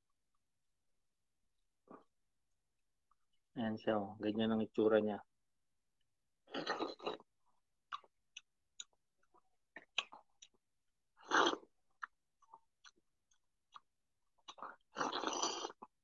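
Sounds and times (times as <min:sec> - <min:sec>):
person chewing juicy fruit: 0:06.5 - 0:07.3, 0:07.9 - 0:16.0
wet mouth clicks and smacks: 0:07.9 - 0:09.0.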